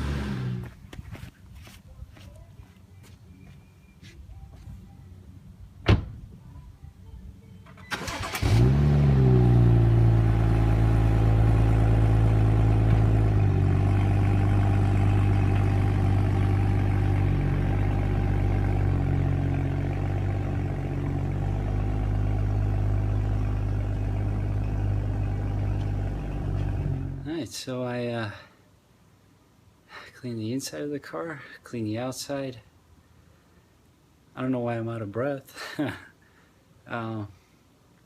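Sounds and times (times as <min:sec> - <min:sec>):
car engine starting and idling: 0:07.6 - 0:27.3.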